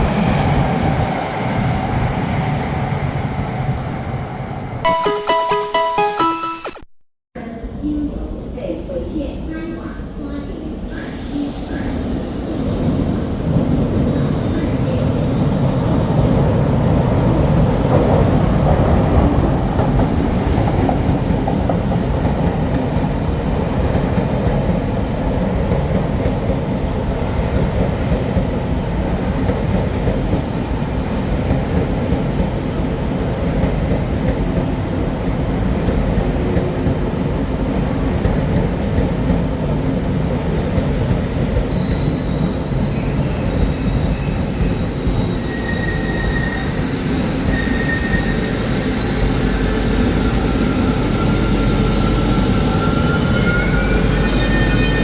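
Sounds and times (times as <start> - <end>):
train wheels rumbling on rails: 10.7 - 55.0
high wheel squeal: 41.7 - 55.0.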